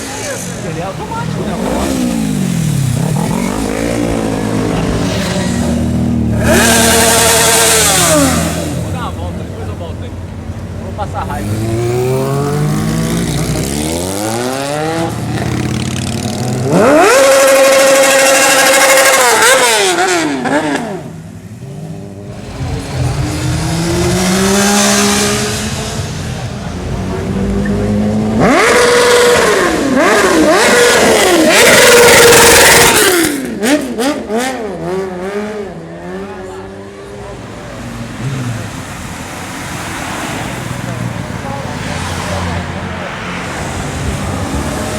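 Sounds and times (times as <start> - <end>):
motorcycle revving high: 0.0 - 9.2, 11.0 - 36.8
motorcycle engines accelerating: 0.0 - 44.9.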